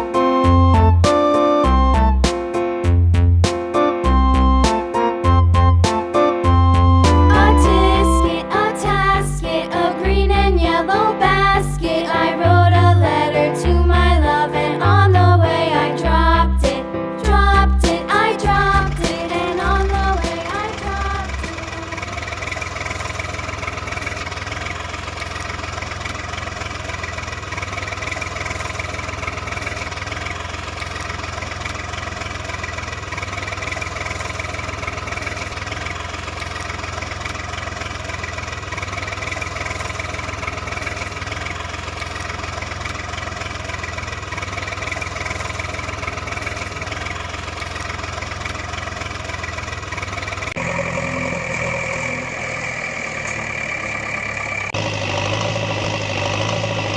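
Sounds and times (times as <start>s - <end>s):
engine idling: 18.5s - 56.9s.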